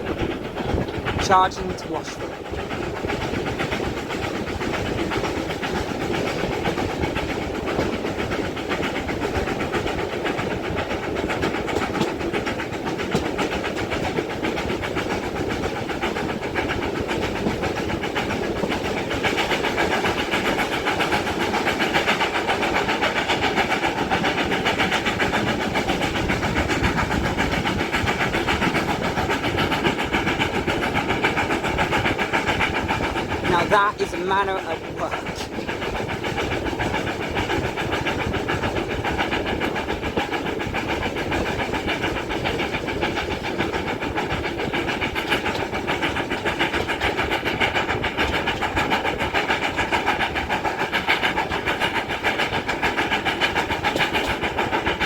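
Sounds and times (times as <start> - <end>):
steam locomotive exhaust beats: 0.0 - 55.0
wheels clattering on rails: 0.0 - 55.0.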